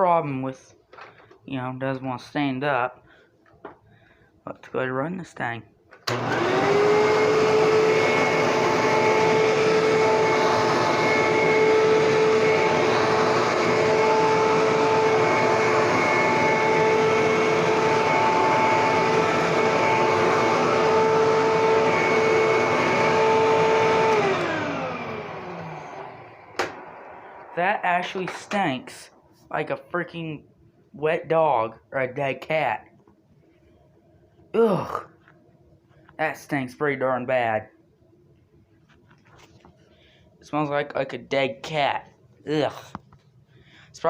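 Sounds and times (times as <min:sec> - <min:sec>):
vacuum cleaner motor whining: 0:06.0 - 0:28.8
rush of airflow: 0:26.1 - 0:28.3.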